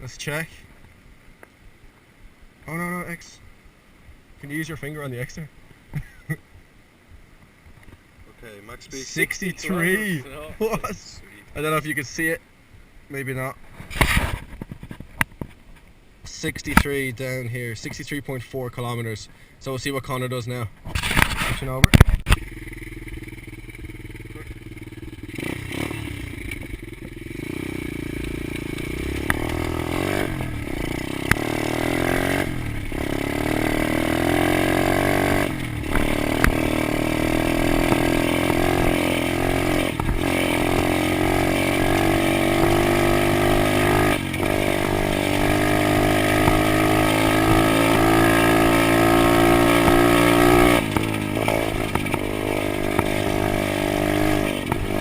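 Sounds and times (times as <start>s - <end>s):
pit bike engine under throttle: 21.2s - 55.0s.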